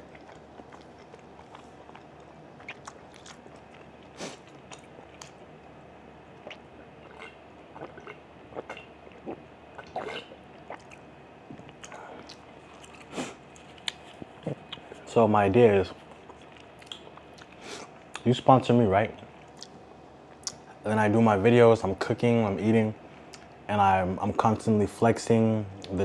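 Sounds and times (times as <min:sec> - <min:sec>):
person chewing food: 0:00.0 - 0:05.6, 0:06.3 - 0:15.0, 0:16.0 - 0:18.2
person drinking from a glass: 0:07.0 - 0:10.8.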